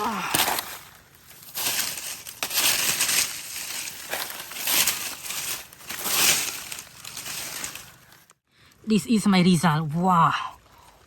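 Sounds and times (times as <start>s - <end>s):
dry material crunching and crinkling: 0.0s - 8.4s.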